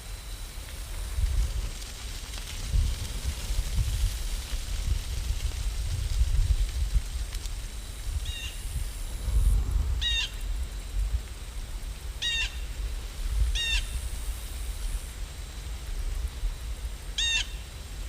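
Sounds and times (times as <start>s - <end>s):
low steady rumble: 0.0s - 18.0s
bird calling: 10.0s - 10.4s, 17.2s - 17.6s.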